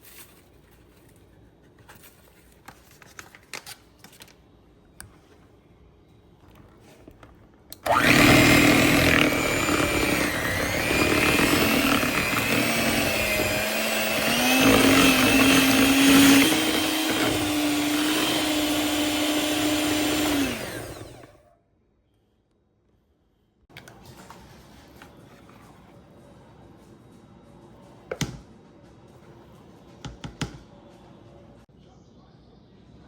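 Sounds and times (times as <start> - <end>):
electric blender running: 7.8 - 21.4.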